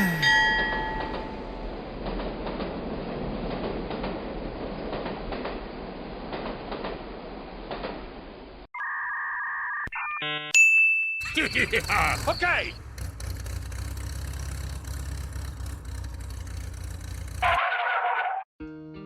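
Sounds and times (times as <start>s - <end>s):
mechanical clattering rumble: 11.3s - 17.5s.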